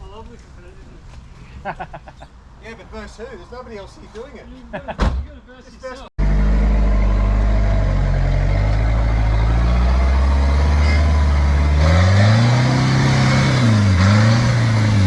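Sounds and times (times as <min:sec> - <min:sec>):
truck engine revving: 0:06.2 - 0:15.0.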